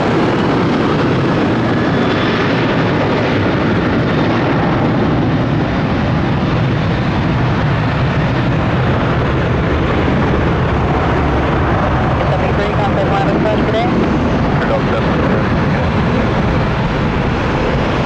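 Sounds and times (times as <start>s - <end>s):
jet engines at high thrust: 0.0s - 18.0s.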